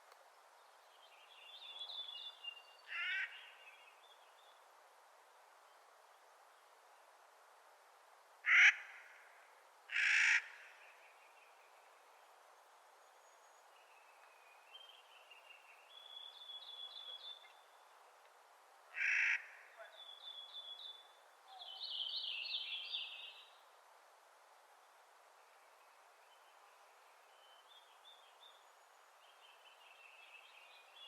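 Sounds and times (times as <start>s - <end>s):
bird giving harsh grating calls: 2.9s - 3.4s, 8.5s - 8.8s, 9.9s - 10.5s, 19.0s - 19.5s.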